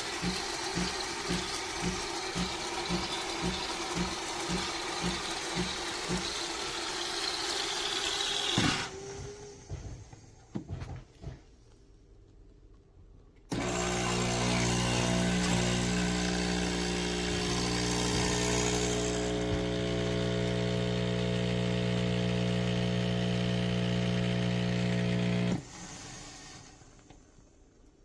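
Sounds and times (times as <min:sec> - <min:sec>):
espresso machine pump buzzing: 0:00.0 - 0:08.9, 0:13.5 - 0:25.7.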